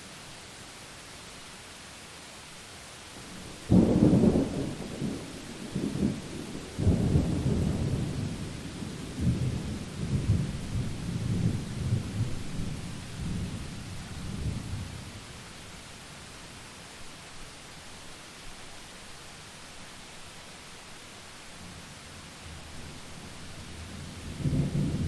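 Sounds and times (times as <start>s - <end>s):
steady rain: 0.0s - 25.0s
thunder rumbling: 3.3s - 15.0s, 24.0s - 25.0s.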